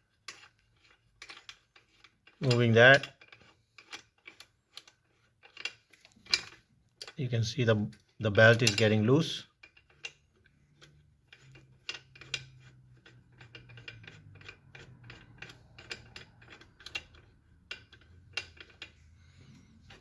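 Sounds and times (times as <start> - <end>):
mechanical clicking and ticking: 9.6 - 20.0.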